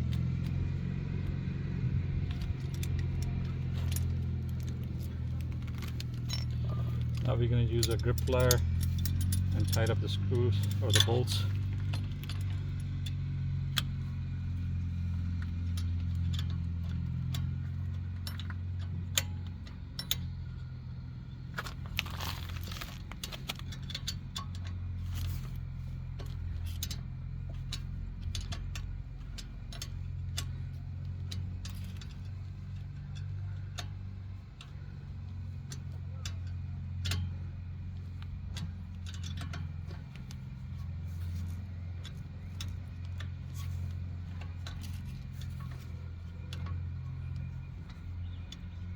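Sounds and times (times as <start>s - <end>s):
steady low hum: 0.0s - 48.9s
metallic clicks of hand tools: 15.3s - 20.6s, 35.6s - 48.9s.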